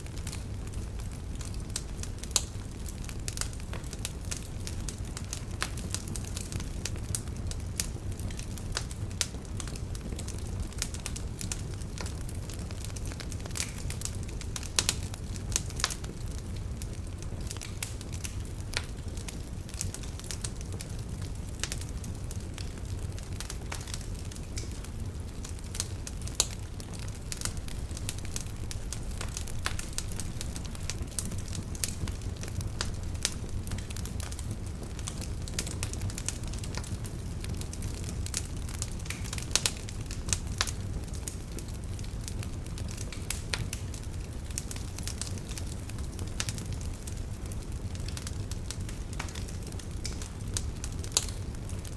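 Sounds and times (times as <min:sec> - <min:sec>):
log fire crackling and popping: 0:00.0 - 0:51.9
low rumble of flames: 0:00.0 - 0:51.9.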